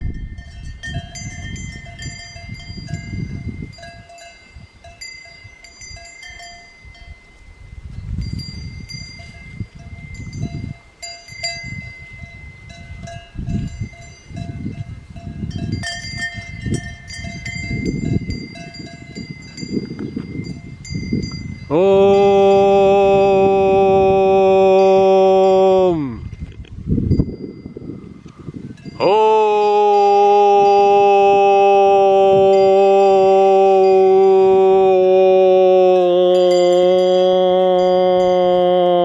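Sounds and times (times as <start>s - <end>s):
cowbells clanking: 0.0s - 22.4s, 26.2s - 28.0s, 28.8s - 29.1s.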